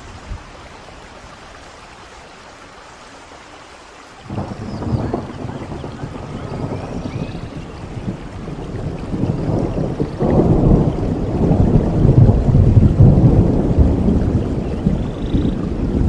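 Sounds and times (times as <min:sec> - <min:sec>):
steady rain: 0:00.0 - 0:16.0
rolling thunder: 0:04.3 - 0:16.0.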